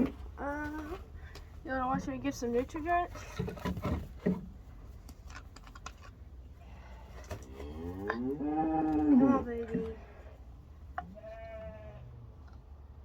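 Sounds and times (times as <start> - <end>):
sheep bleating: 11.2 - 12.1.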